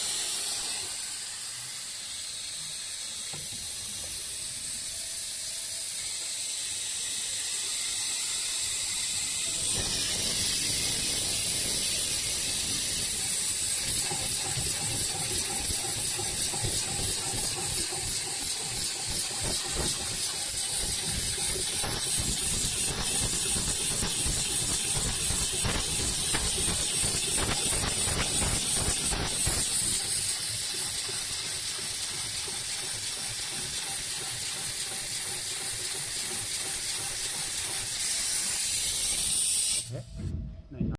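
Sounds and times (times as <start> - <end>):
industrial sewing machine chatter: 0.0 - 39.8
steady hiss: 0.0 - 40.0.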